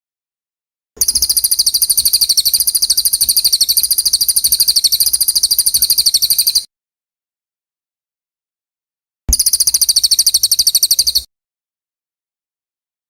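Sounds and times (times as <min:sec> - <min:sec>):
songbird high trill: 0:01.0 - 0:06.7, 0:09.3 - 0:11.3.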